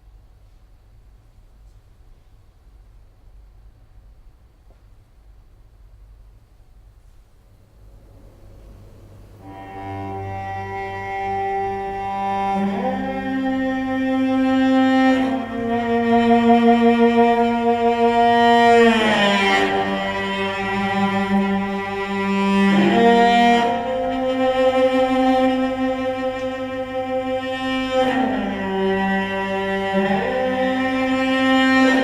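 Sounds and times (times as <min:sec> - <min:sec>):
cello bowed notes: 0:07.8 - 0:32.0.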